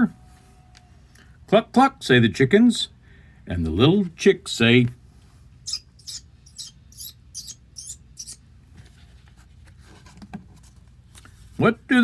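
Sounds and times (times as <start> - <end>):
man imitating chick peeps: 5.7 - 8.4.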